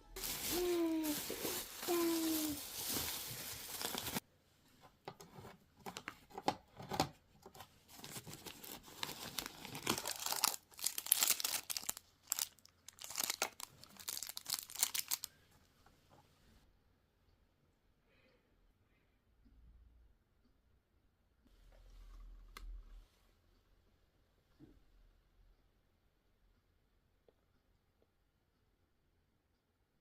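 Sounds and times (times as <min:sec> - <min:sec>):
wrapping crinkled and torn: 0:00.2 - 0:04.2, 0:07.9 - 0:15.4.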